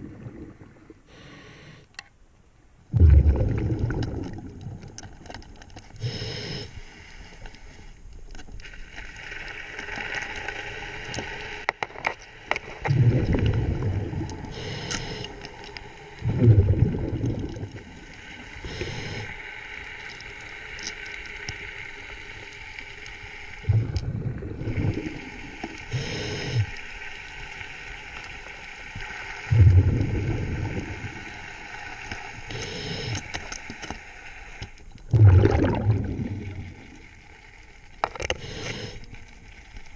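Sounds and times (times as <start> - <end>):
bubbles gurgling underwater: 0.0 - 1.0, 2.9 - 5.2, 12.9 - 14.6, 16.2 - 18.1, 23.6 - 26.6, 29.5 - 31.3, 35.1 - 37.1
hissing inhalations: 1.1 - 1.9, 6.0 - 7.2, 14.5 - 15.4, 18.6 - 19.4, 25.8 - 26.8, 32.5 - 33.3, 38.3 - 39.1.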